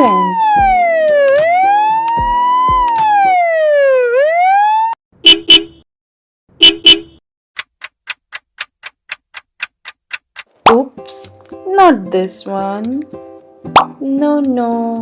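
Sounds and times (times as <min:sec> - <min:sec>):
ambulance siren wailing: 0:00.0 - 0:05.0
even ticking: 0:07.6 - 0:10.6.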